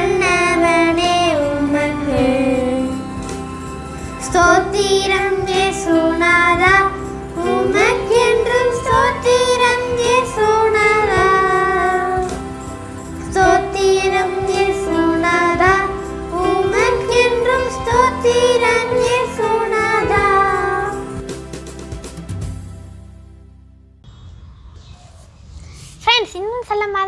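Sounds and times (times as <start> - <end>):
person singing: 0.0 - 3.1, 4.2 - 12.4
instrumental backing: 0.0 - 23.8.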